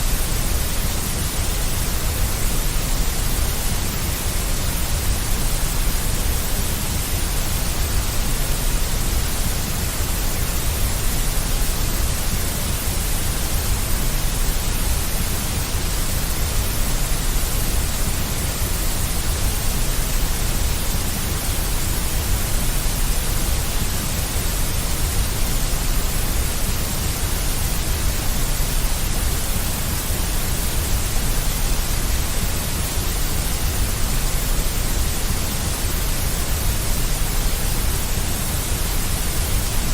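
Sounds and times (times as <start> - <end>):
white noise rumble and hiss: 0.0 - 39.9.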